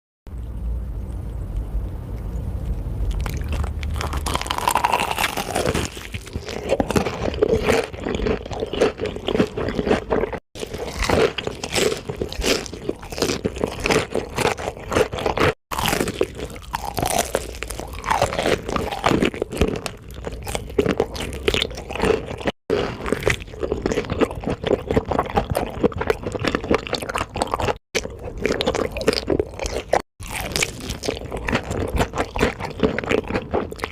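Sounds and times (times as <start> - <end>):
low rumble: 0.3 - 4.9
crunchy chewing of fried chicken: 0.3 - 33.9.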